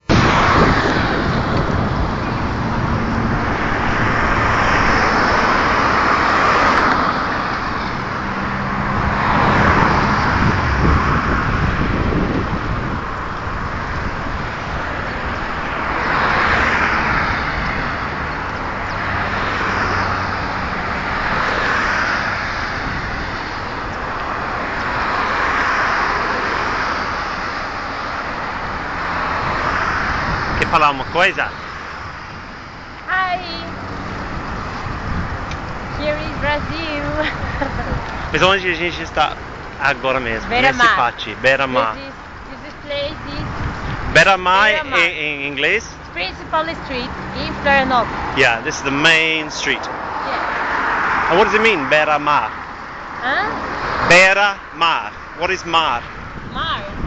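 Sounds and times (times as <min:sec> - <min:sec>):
cars passing: 0:00.0 - 0:57.0.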